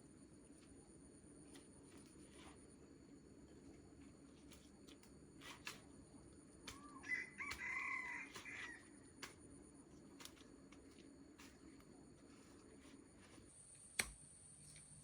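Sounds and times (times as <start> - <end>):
rooster crowing: 6.7 - 9.0.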